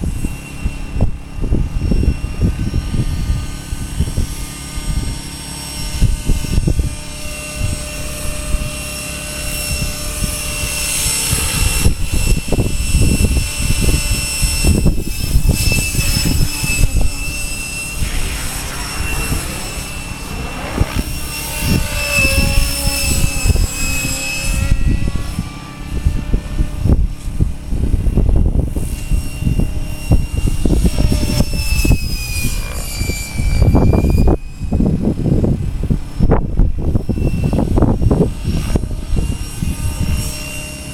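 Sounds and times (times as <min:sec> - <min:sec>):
low rumble: 0:00.0 - 0:32.7
model helicopter rotor whine: 0:00.0 - 0:40.9.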